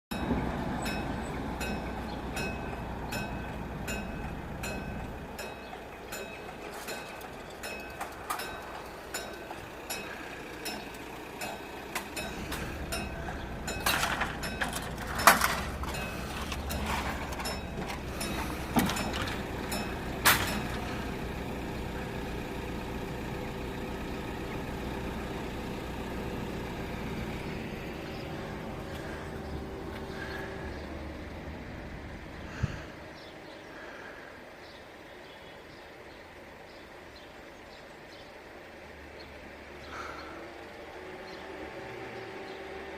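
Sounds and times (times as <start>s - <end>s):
vehicle engines running: 0.0s - 42.9s
electric alarm bells ringing: 0.1s - 22.6s.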